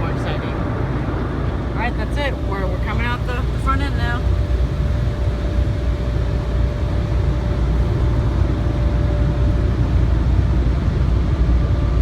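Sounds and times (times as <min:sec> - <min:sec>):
car wash machinery rumbling: 0:00.0 - 0:12.0.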